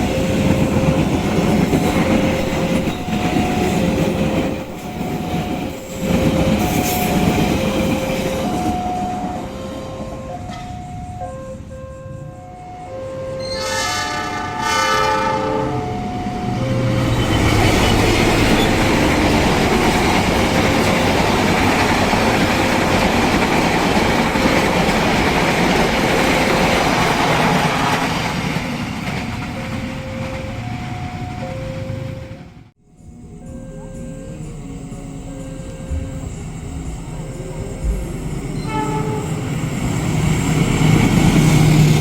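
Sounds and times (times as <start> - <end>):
train wheels rumbling on rails: 0.0 - 12.0, 15.8 - 42.0
train horn: 4.9 - 18.8, 38.6 - 39.6.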